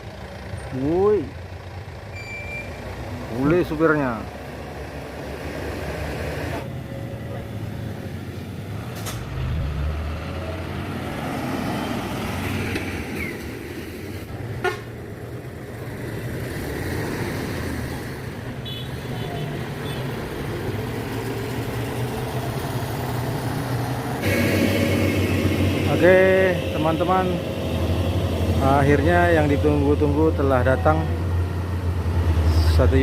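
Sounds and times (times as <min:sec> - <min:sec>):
heavy vehicle engines droning: 0:00.0 - 0:33.0
horn toot: 0:24.2 - 0:30.0.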